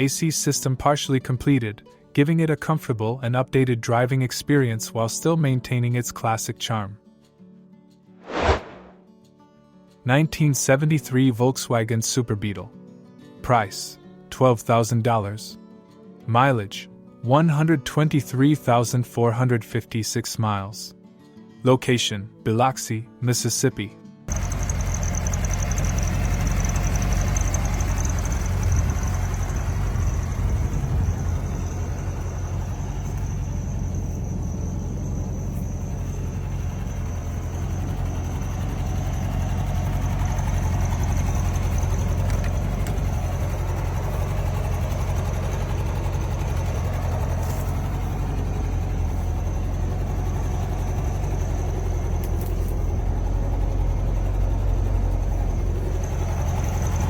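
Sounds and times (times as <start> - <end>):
car engine idling: 24.3 - 57.0.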